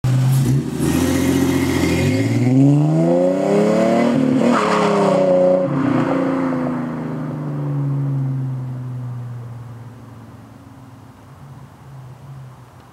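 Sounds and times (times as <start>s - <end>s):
car accelerating past: 0.1s - 8.7s.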